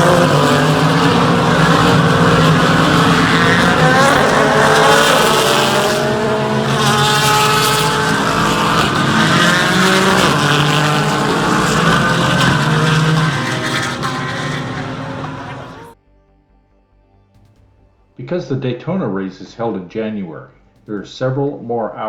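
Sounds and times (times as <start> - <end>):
race car engines passing: 0.0 - 16.0.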